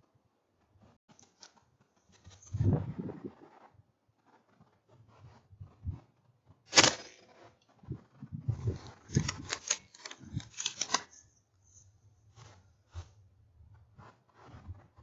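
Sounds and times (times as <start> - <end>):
sharp crack: 6.7 - 7.5
clicks and rattles: 6.7 - 11.2.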